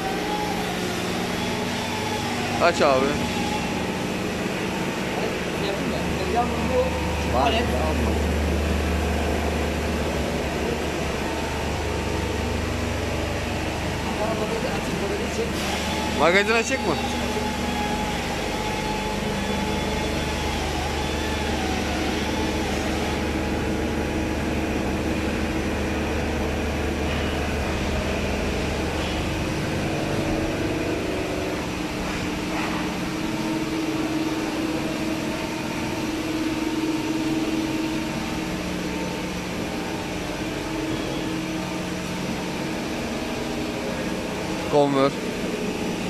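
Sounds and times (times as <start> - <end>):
machine steady mechanical hum: 0.0 - 46.0.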